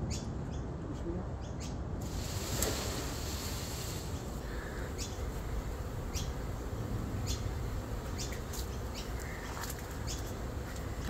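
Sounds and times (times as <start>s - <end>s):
low outdoor rumble: 0.0s - 11.0s
small bird chirping: 4.2s - 5.3s, 6.1s - 6.4s, 7.2s - 10.4s.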